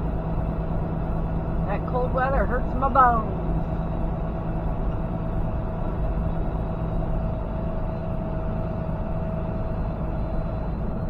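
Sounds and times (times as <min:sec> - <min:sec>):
thin constant whine: 0:00.0 - 0:11.0
truck engine and road noise: 0:00.0 - 0:11.0.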